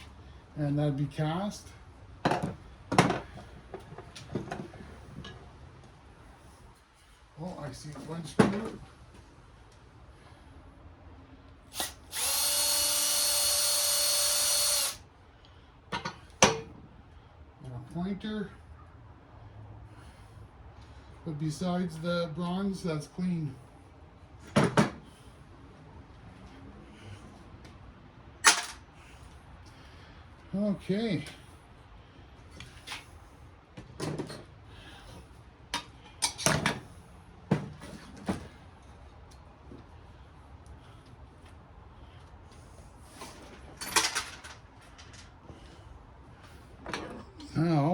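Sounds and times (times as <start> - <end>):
power drill running: 11.7 - 15.0.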